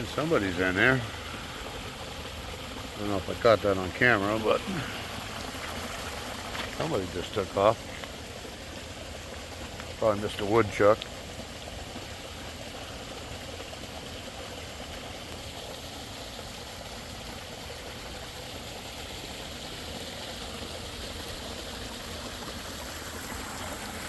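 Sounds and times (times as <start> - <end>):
pond water running: 0.0 - 24.0.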